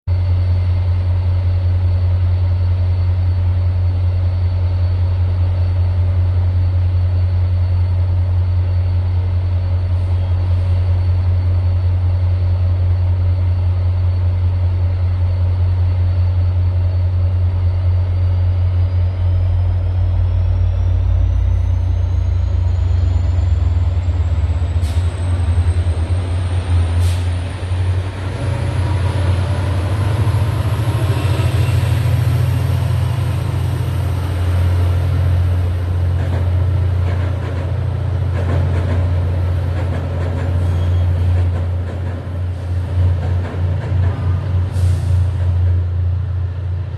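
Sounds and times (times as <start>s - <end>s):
train low rumble: 0.0s - 46.9s
thin rising whine: 10.8s - 36.9s.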